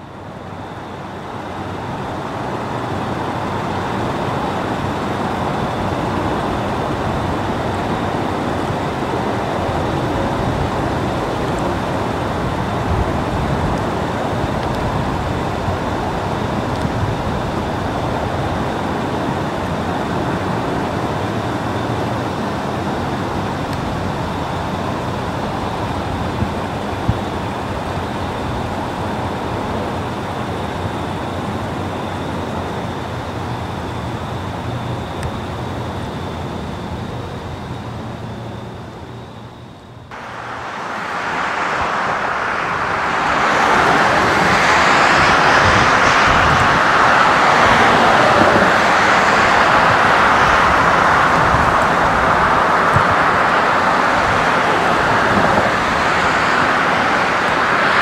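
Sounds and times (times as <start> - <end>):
freight cars rolling on rails: 40.1 - 58.0.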